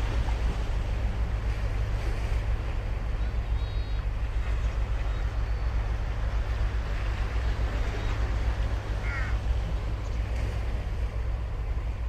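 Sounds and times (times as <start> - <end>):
ocean surf on sandy beach: 0.0 - 12.0.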